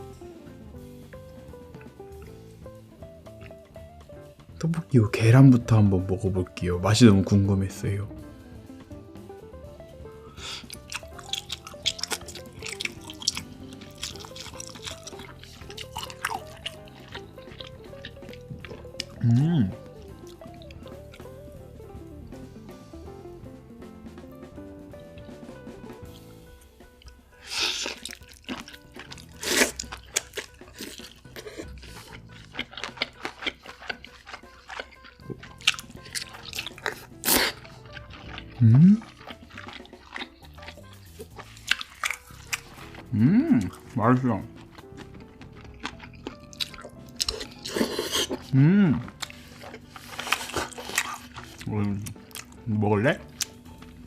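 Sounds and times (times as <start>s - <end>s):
soft background music: 0.0s - 54.0s
crunching or slurping: 10.4s - 21.4s, 27.0s - 52.6s, 53.2s - 54.0s
wet chewing and lip smacks: 10.5s - 19.2s, 19.8s - 21.4s, 27.0s - 48.5s, 49.1s - 52.6s, 53.2s - 54.0s.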